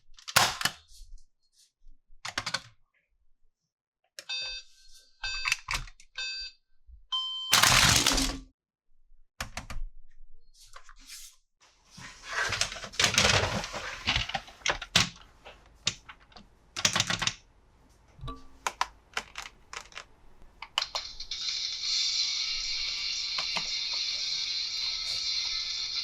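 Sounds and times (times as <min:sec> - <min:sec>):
electronic toy beep: 0:06.2 - 0:06.6, 0:07.2 - 0:07.6
plastic toy parts clicking: 0:15.8 - 0:17.4, 0:18.6 - 0:21.2
packaging rustling: 0:18.7 - 0:20.2.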